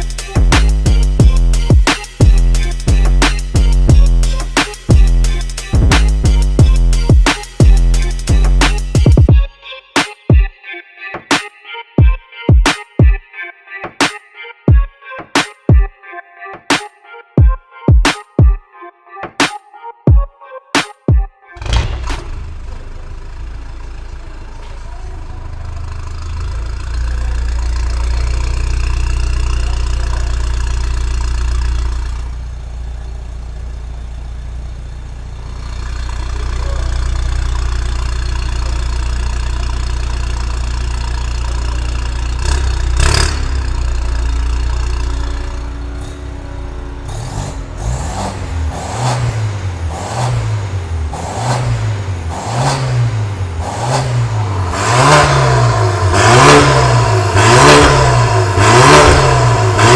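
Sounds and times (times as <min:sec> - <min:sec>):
car engine idling and revving: 0:00.0 - 0:09.4, 0:21.6 - 0:59.9.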